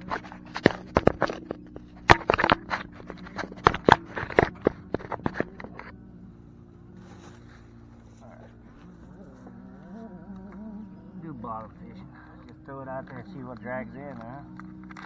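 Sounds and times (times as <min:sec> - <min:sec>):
hands handling things at microphone: 0:00.0 - 0:05.9.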